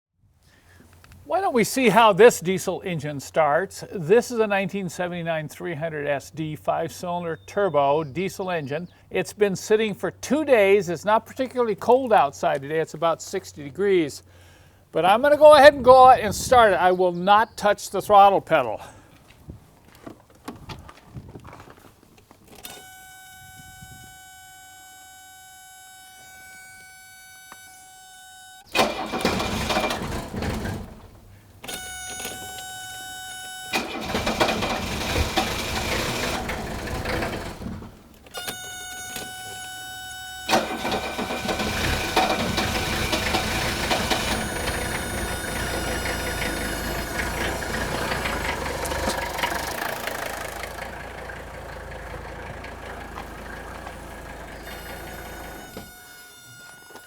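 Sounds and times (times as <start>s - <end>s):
diesel engine starting and running: 22.5s - 57.0s.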